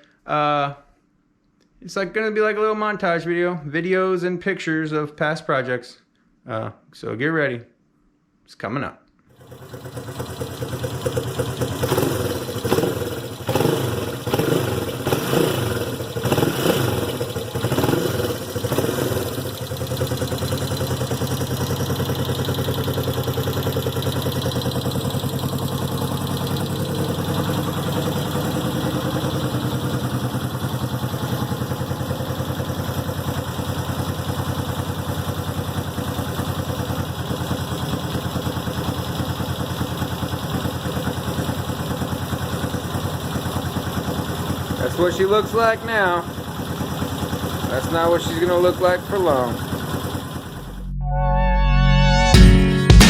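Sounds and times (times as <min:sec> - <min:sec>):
motorcycle engine revving and idling: 0:09.3 - 0:51.0.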